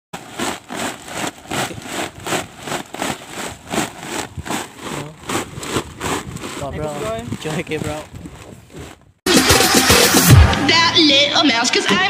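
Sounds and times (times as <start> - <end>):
sack swished through sea water: 0.2 - 9.0.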